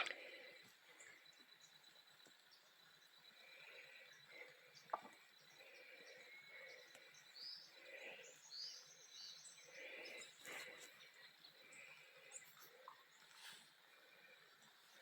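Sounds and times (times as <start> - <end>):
birds chirping and whistling: 3.4 - 13.5.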